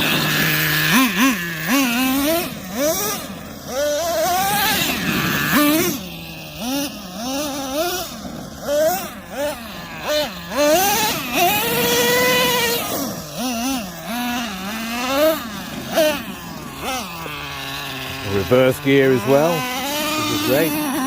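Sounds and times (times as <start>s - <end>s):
small two-stroke engine revving: 0.0s - 21.0s.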